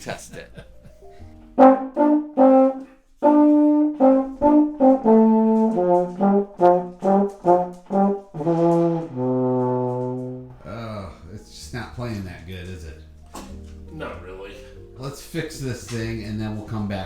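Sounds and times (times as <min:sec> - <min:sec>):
baritone horn notes: 0:01.4 - 0:10.9.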